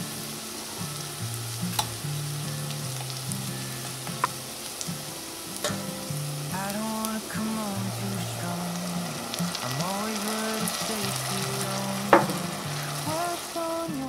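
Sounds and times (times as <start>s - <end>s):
onions sizzling in a pot: 0.0s - 14.0s
soft melodic background music: 0.0s - 14.0s
syrup pouring: 6.3s - 14.0s.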